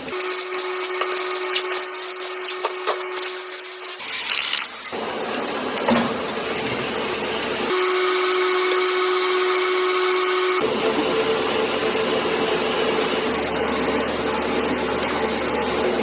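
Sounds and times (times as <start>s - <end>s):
tool noise: 0.0s - 5.0s
factory machinery humming: 4.9s - 16.0s.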